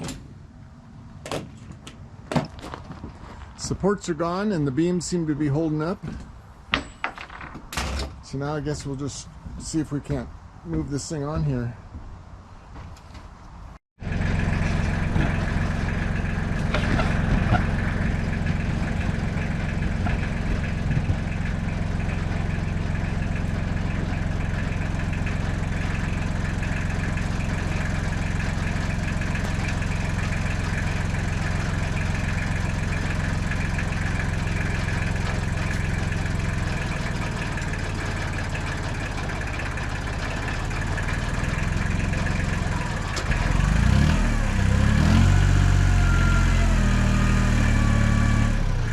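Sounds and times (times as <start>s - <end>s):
engine idling: 14.0s - 48.9s.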